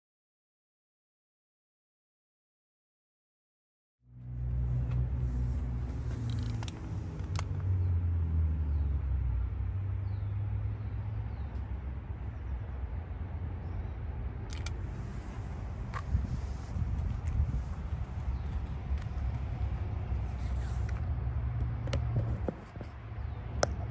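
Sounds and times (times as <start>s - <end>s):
sharp clicks: 6.2s - 7.7s, 14.4s - 14.8s.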